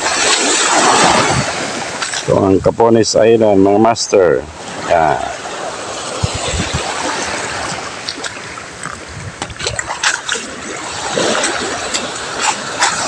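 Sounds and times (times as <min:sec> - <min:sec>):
sea water washing against shore: 0:00.0 - 0:13.0
small clicks and splashes: 0:02.0 - 0:02.3, 0:08.0 - 0:13.0.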